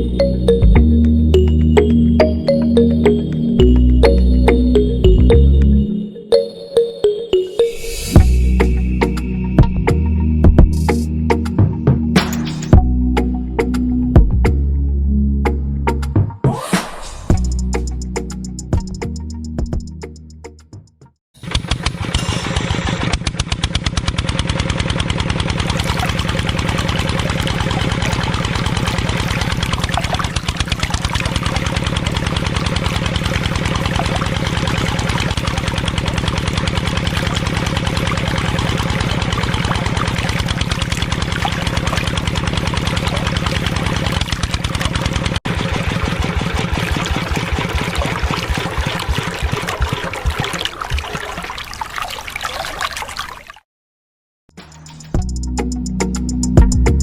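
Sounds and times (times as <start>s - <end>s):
small engine chugging: 21.4s - 50.3s.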